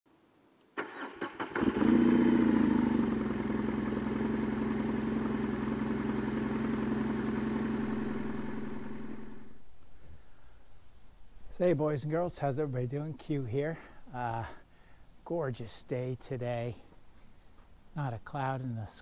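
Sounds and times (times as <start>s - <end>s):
motorcycle engine starting and idling: 0.8s - 9.6s.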